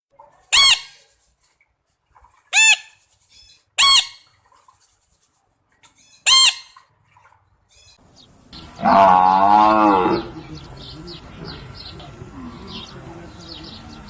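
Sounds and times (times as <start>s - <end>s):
fowl squawking: 0.5s - 1.1s, 2.4s - 4.6s, 5.8s - 8.0s.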